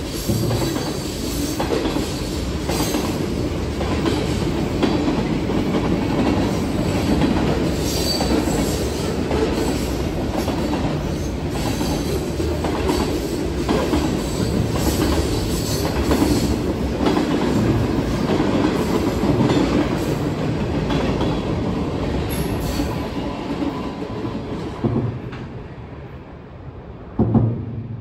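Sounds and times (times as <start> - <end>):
sharp knocks: 27.2 - 27.9.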